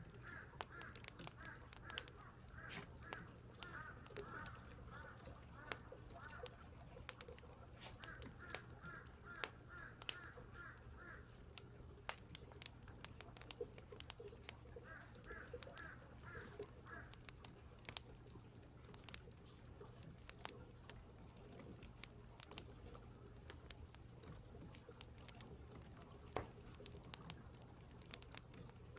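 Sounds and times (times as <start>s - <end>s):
crows cawing faintly: 0.0s - 11.7s, 13.3s - 19.2s
faint clicks: 0.0s - 28.9s.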